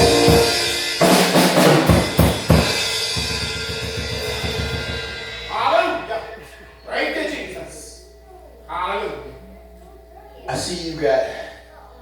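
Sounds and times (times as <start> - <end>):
held keyboard chords: 0.0 - 3.4
drum kit hits and cymbal crashes: 0.0 - 6.1.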